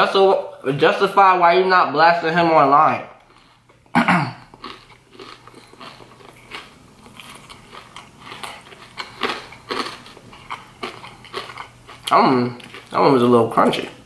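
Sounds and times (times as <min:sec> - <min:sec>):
person chewing crunchy food: 0:03.2 - 0:13.1.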